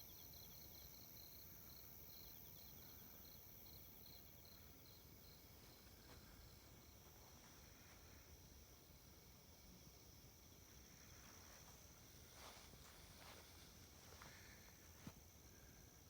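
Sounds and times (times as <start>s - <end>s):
faint insect chirping: 0.0s - 16.0s.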